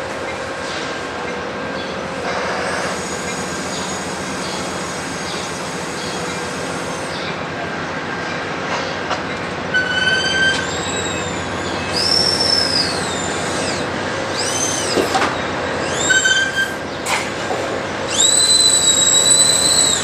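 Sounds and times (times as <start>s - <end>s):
train wheels on rail: 0.0s - 20.0s
train wheels squealing: 2.4s - 7.3s, 9.7s - 15.1s, 15.8s - 16.8s, 18.1s - 20.0s.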